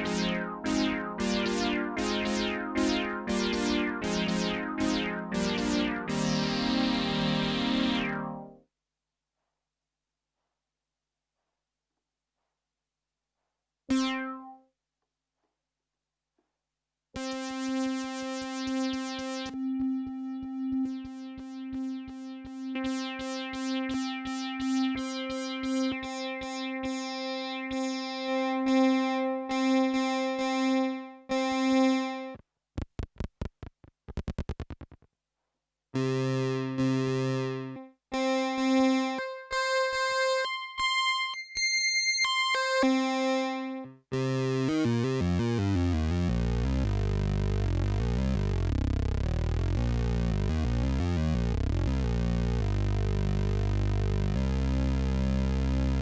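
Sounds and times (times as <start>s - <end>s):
synthesizer notes: 0.0s - 8.6s, 13.9s - 14.6s, 19.1s - 24.9s.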